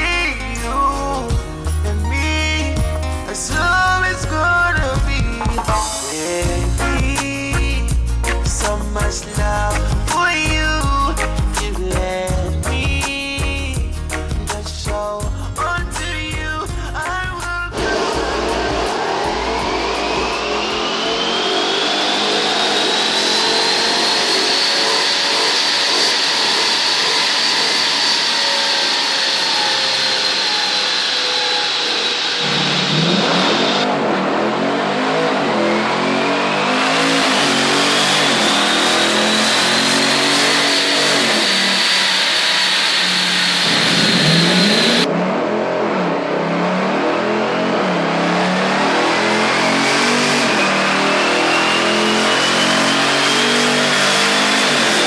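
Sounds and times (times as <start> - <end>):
high whine: 0.0 - 55.0
car engine accelerating: 17.7 - 55.0.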